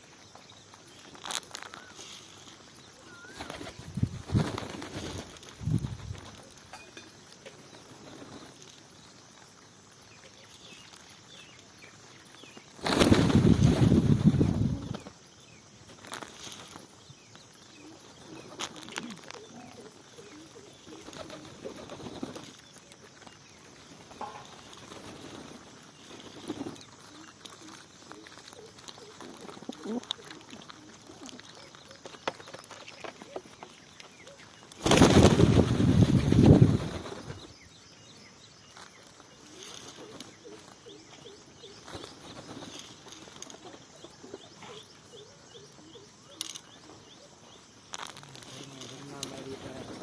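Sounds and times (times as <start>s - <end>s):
birds calling: 0.0s - 8.5s, 16.6s - 50.0s.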